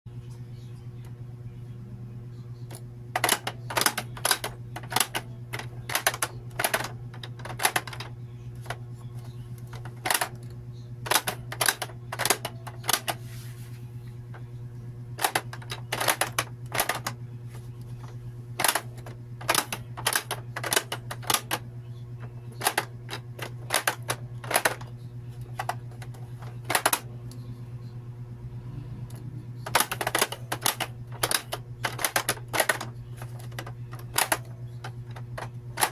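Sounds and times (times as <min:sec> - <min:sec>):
steady low hum: 0:00.1 - 0:35.9
plastic toy clicking and snapping: 0:02.7 - 0:08.8, 0:09.7 - 0:13.2, 0:15.2 - 0:17.2, 0:18.6 - 0:21.6, 0:22.5 - 0:24.9, 0:25.5 - 0:27.0, 0:29.6 - 0:35.9.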